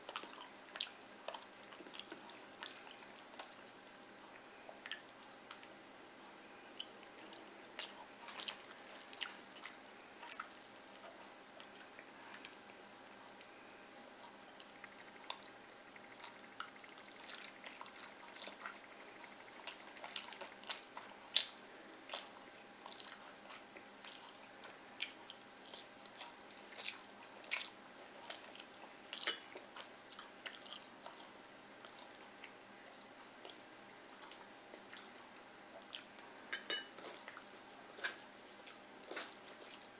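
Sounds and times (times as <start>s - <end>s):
wet chewing with smacking: 0.0s - 5.8s, 6.5s - 39.9s.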